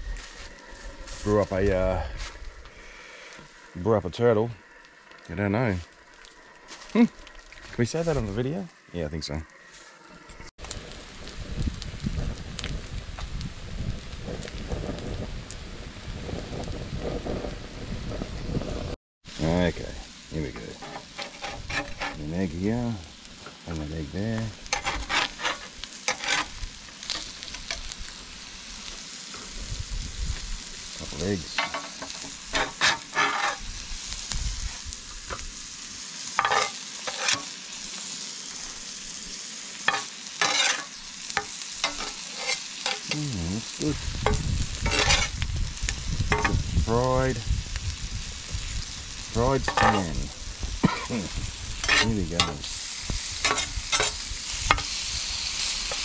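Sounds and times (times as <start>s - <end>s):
meat sizzling in a pan: 0.0s - 56.0s
utensil scraping and clicking on pan: 20.8s - 22.2s, 24.7s - 26.5s, 31.6s - 33.6s, 36.4s - 37.5s, 39.9s - 43.1s, 44.2s - 45.4s, 53.4s - 54.9s.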